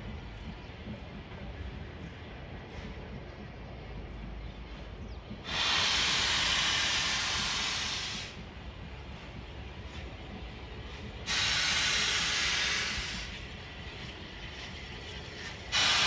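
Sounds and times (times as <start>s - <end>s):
steam locomotive hissing: 0.0s - 16.0s.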